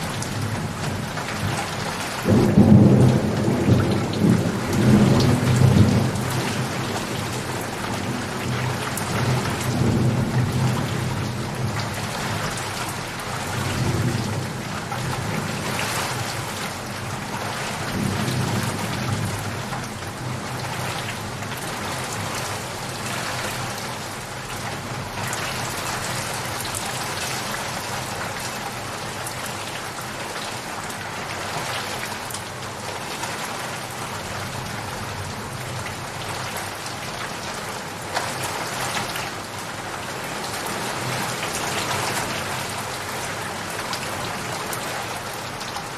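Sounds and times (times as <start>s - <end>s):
steady rain falling: 0.0s - 45.9s
thunder rumbling: 2.2s - 12.4s.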